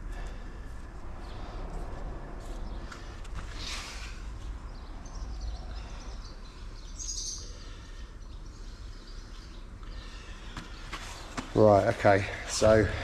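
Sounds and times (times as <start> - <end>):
low steady background hum: 0.0 - 13.0
faint bird chirps: 4.7 - 11.2.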